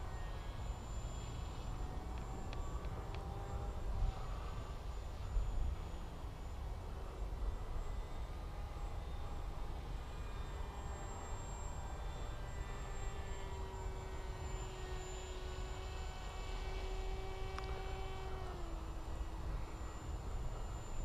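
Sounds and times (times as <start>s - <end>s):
model plane motor whining: 0.0s - 21.0s.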